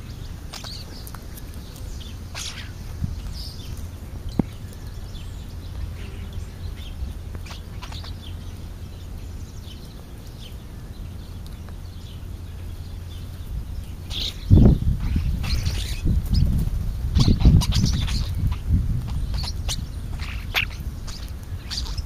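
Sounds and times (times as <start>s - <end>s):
bird chirps and calls: 0.0s - 22.0s
steady low rumble: 0.0s - 22.0s.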